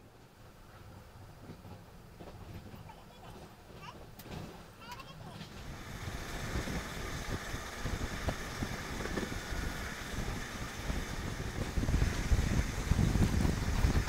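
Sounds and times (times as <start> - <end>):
train coaches rumbling on track: 0.0 - 14.0
wind buffeting microphone: 5.4 - 14.0.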